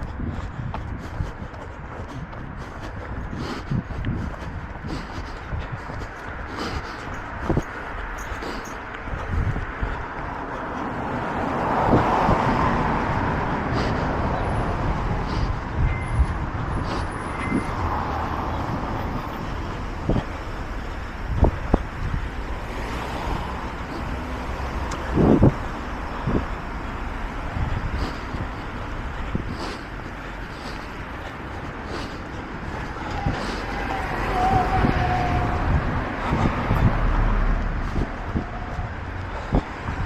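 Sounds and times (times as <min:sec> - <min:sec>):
cars passing: 0:00.0 - 0:40.0.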